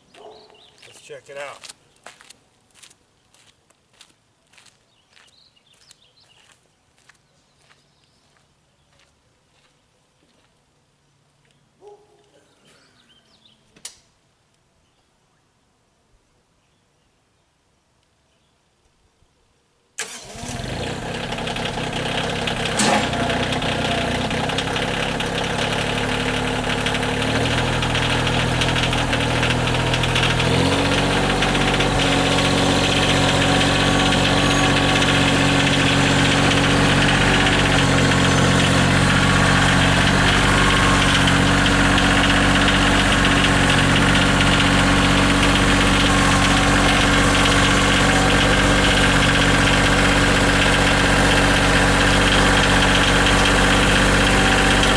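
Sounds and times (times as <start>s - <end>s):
engine running: 20.0s - 54.9s.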